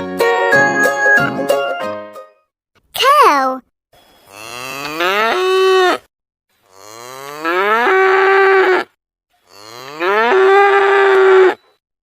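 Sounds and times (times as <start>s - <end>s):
cow mooing: 4.3s - 6.0s, 6.7s - 8.9s, 9.5s - 11.6s.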